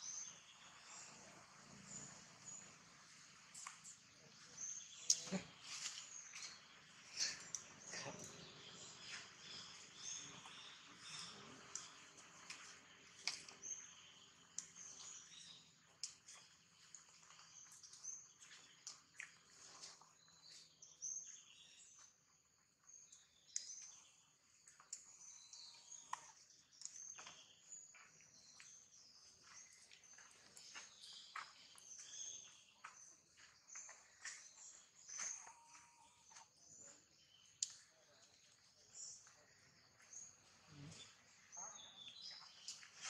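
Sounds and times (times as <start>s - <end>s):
small birds chirping: 0.0s - 43.0s.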